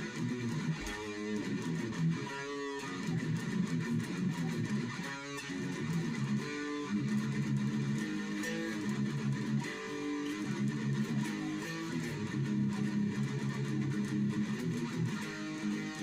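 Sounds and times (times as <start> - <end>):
electric guitar chords: 0.0 - 16.0.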